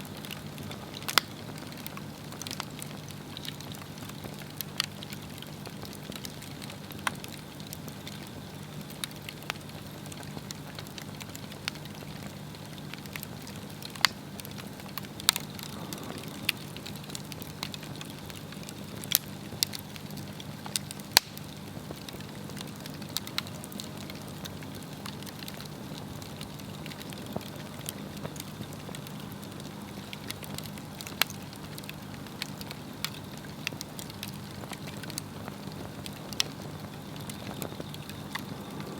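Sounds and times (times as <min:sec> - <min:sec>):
burning wood popping and crackling: 0:00.0 - 0:38.9
low rush of flame: 0:13.1 - 0:19.7, 0:35.0 - 0:38.9.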